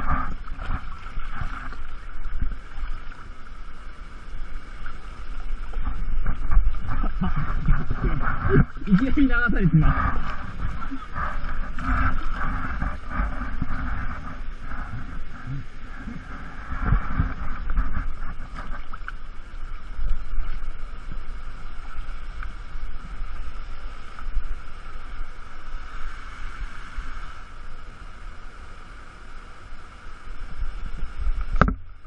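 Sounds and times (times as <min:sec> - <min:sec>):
splashing: 0:00.0 - 0:22.3.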